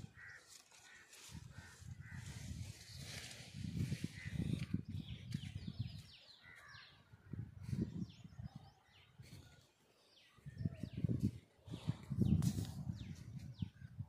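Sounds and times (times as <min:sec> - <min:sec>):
birds chirping: 0:03.7 - 0:14.0.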